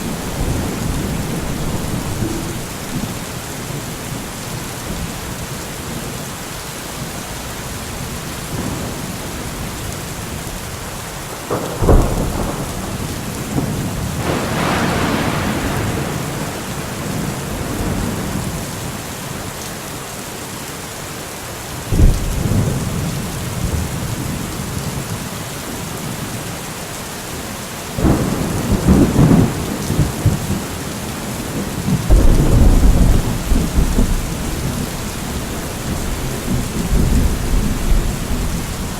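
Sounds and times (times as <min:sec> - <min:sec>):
thunder cracks and rumbles: 0:00.0 - 0:03.3, 0:11.4 - 0:18.6, 0:28.0 - 0:38.9
heavy rain: 0:00.0 - 0:38.9.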